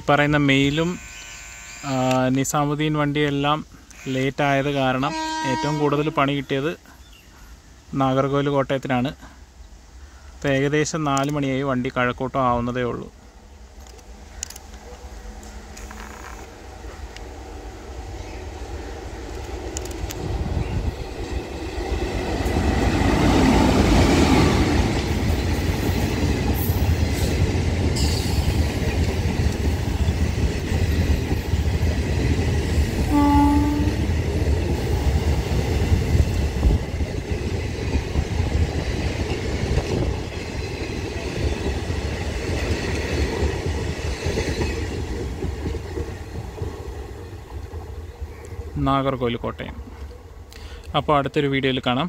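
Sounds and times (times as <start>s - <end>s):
train horn blast: 0.6s - 2.2s, 3.9s - 6.4s, 33.1s - 34.2s
train wheels on rails: 13.6s - 48.7s.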